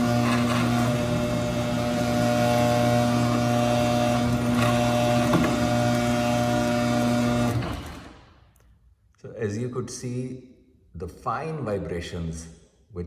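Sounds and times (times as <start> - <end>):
garage door opener motor humming: 0.0 - 8.4.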